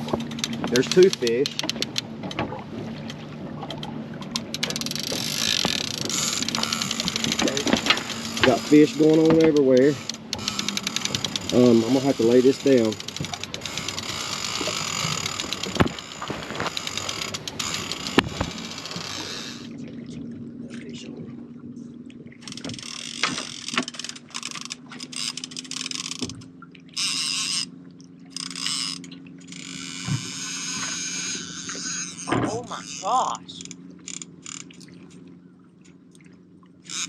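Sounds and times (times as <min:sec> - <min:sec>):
knocks from rod and boat: 0:00.0 - 0:19.8, 0:22.4 - 0:26.7, 0:28.3 - 0:33.0
fishing reel clicker ratcheting: 0:00.1 - 0:02.0, 0:04.3 - 0:19.7, 0:22.4 - 0:26.4, 0:27.0 - 0:27.7, 0:28.3 - 0:33.0, 0:33.6 - 0:34.8.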